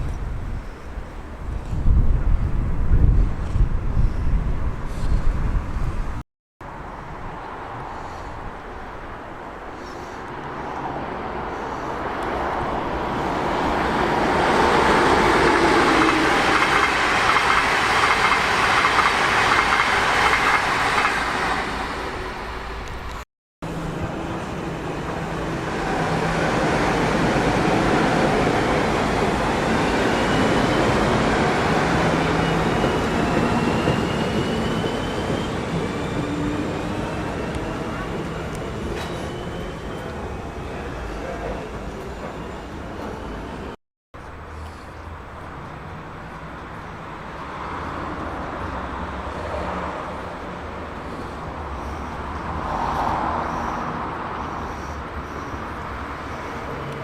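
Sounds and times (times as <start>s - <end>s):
train wheels rumbling on rails: 11.6s - 43.8s.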